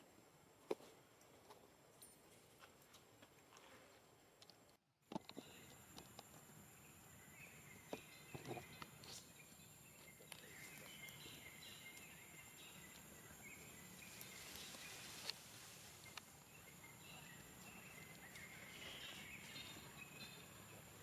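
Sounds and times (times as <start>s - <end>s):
soft chirping: 5.2s - 21.0s.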